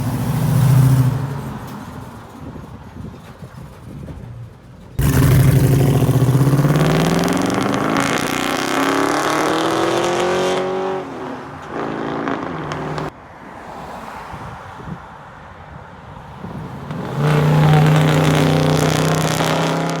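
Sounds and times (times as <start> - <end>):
truck engine revving: 5.0 - 13.1, 16.5 - 20.0.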